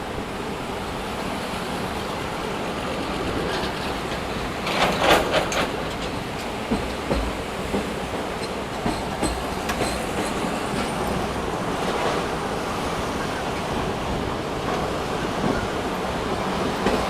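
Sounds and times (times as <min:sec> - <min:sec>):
train wheels rumbling on track: 0:00.0 - 0:17.0
clicks over rail joints: 0:03.2 - 0:10.9.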